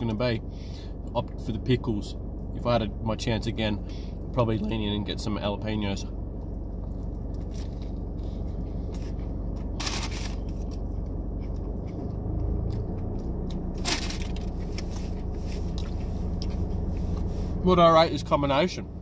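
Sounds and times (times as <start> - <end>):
low hum: 0.0 - 19.0
person chewing crunchy food: 6.7 - 17.3.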